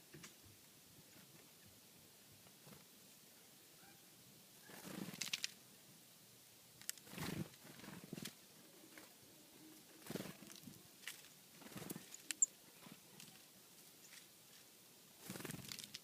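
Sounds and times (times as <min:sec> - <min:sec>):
birds pecking: 0:09.8 - 0:16.0
soft rustling: 0:09.8 - 0:16.0.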